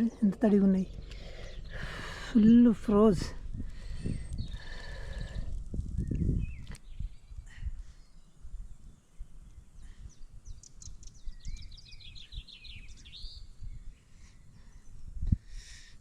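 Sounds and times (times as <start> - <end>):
low rumbling noise: 0.0 - 10.5
songbird chirping: 0.0 - 15.3.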